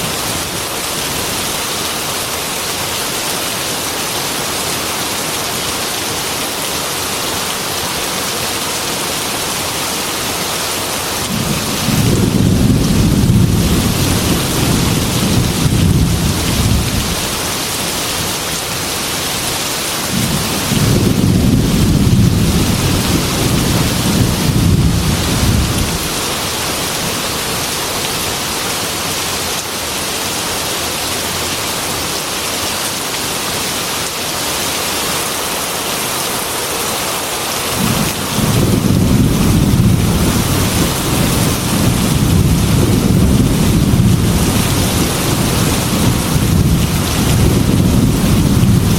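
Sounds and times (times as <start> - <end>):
heavy rain on a window: 0.0 - 48.9
rolling thunder: 11.3 - 17.5, 20.1 - 26.1, 37.8 - 48.9.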